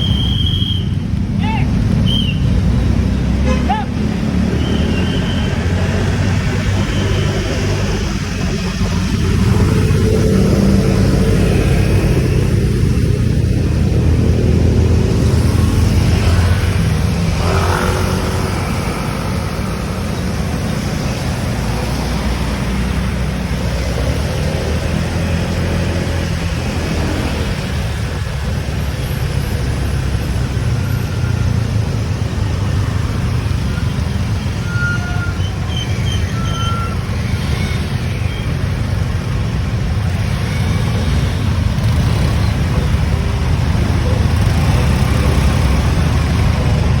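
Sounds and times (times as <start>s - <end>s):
motorcycle engine and road rumble: 0.0s - 47.0s.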